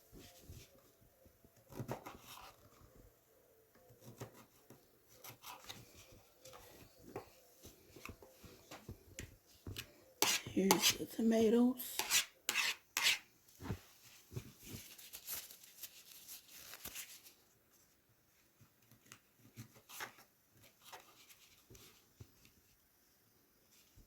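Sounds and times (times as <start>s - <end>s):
rustling handling: 13.5s - 18.0s.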